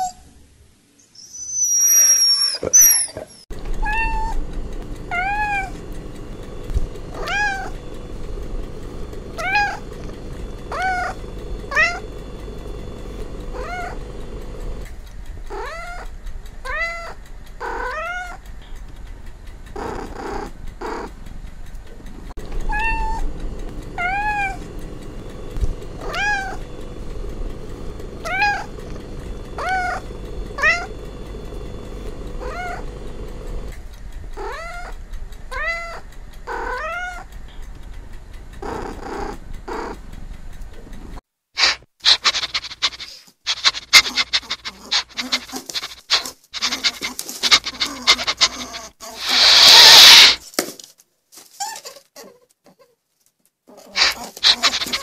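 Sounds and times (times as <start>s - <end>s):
cat meowing: 3.8s - 4.4s, 9.4s - 9.8s, 15.5s - 18.4s, 22.7s - 23.2s, 26.0s - 26.6s, 28.2s - 28.7s, 30.6s - 30.9s, 34.4s - 37.3s.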